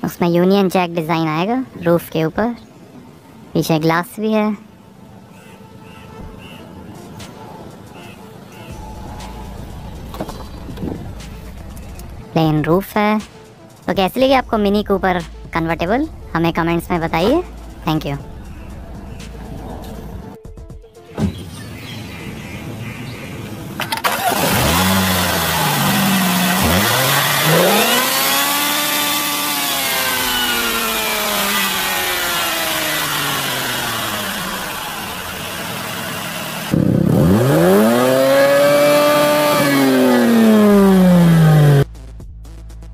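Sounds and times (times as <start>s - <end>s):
car engine free-revving: 23.8s - 41.9s.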